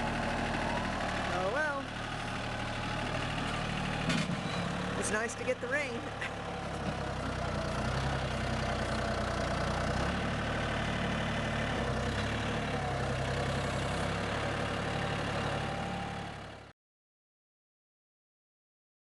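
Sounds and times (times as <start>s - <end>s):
vehicle engine idling: 0.0s - 16.7s.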